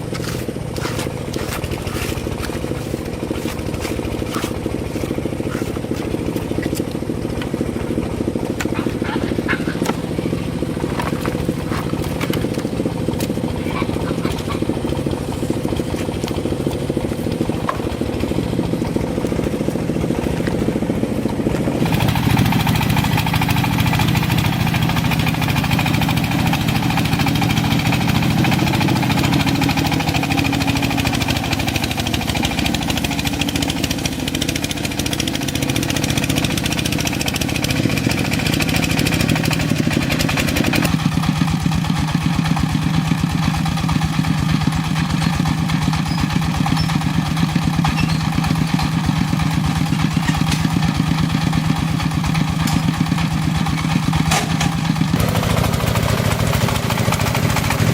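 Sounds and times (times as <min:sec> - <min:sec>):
engine running: 0:00.0 - 0:57.9
rough mechanical noise: 0:00.0 - 0:57.9.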